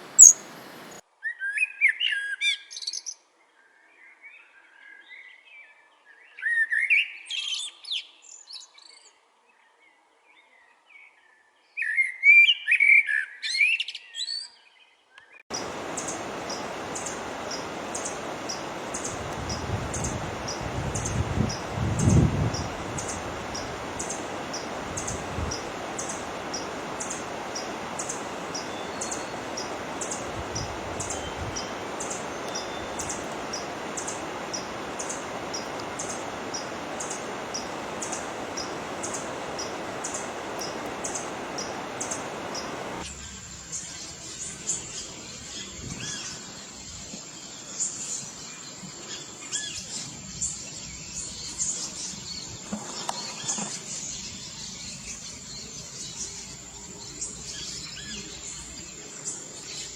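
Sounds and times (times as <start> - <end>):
bird chirping: 0.0 - 1.0, 15.5 - 44.0.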